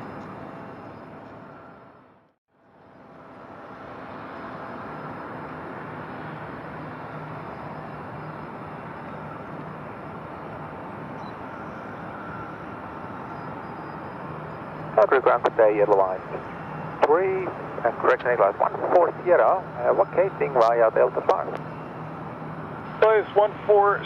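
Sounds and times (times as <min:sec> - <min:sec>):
distant jet engine with whine: 0:00.0 - 0:24.0.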